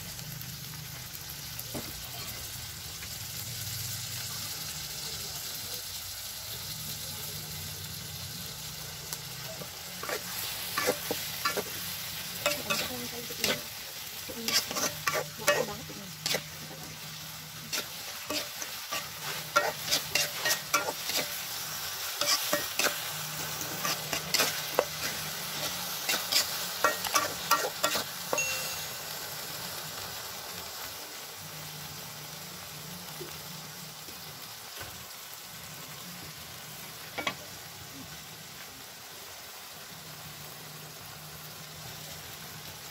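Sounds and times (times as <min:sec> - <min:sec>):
grasshoppers sizzling in hot oil: 0:00.0 - 0:42.9
metal spatula scraping a wok: 0:09.6 - 0:28.4.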